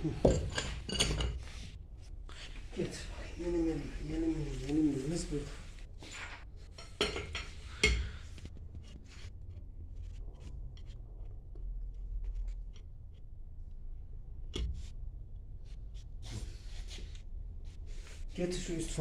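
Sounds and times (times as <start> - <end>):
metal tools clicking and clinking: 0.2 - 1.4.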